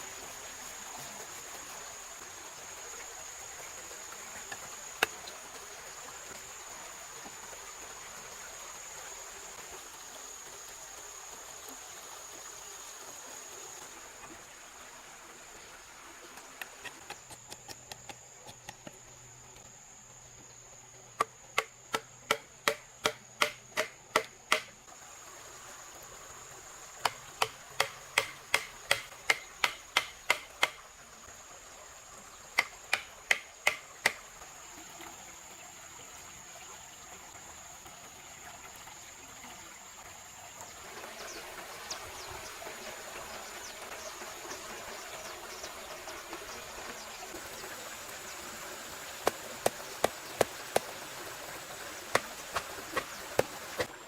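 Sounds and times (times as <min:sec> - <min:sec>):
tool striking hard: 0:27.4 - 0:30.8.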